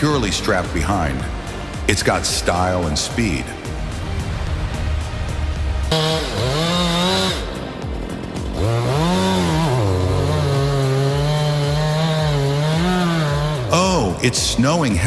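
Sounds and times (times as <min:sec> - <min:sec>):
chainsaw engine revving: 0:03.8 - 0:07.7, 0:08.5 - 0:13.8.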